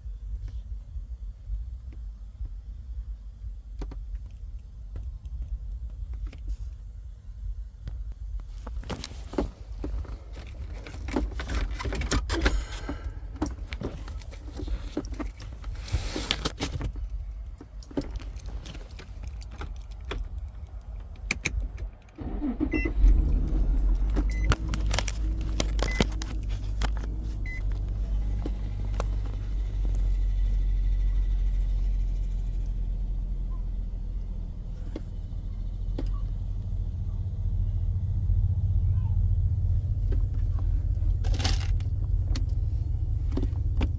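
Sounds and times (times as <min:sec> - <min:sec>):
car engine starting and idling: 0:07.4 - 0:43.9
keys jangling in ignition: 0:09.0 - 0:32.8, 0:40.2 - 0:43.9.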